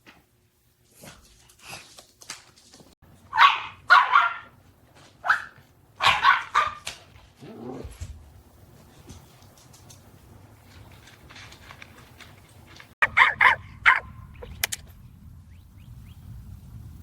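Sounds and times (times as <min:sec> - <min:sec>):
dog barking: 0:03.3 - 0:04.6, 0:05.2 - 0:06.9, 0:13.0 - 0:14.2.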